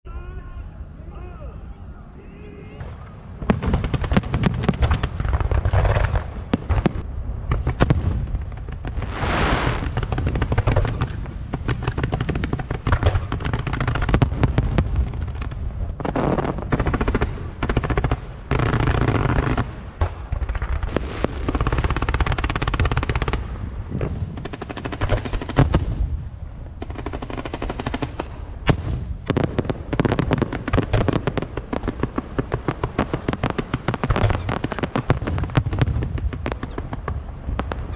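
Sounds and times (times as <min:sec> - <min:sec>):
fireworks crackling bangs: 0:02.8 - 0:37.9
fireworks rushing hiss: 0:07.8 - 0:16.7, 0:20.7 - 0:26.2.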